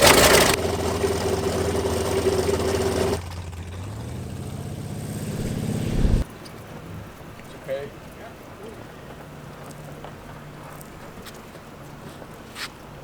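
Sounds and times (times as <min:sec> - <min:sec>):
radial aircraft engine running: 0:00.0 - 0:06.2.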